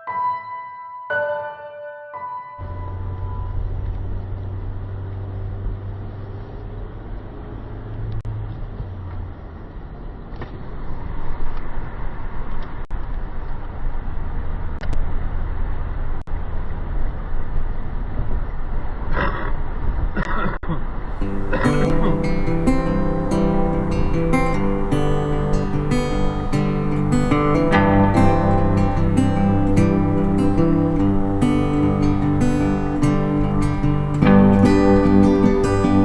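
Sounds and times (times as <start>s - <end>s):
engine droning: 2.6s - 10.4s, 21.1s - 36.0s.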